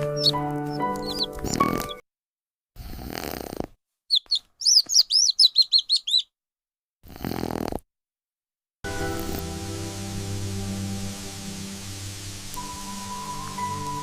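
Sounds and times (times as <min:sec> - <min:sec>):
baby chick peeping: 0:00.0 - 0:02.0, 0:04.1 - 0:06.3.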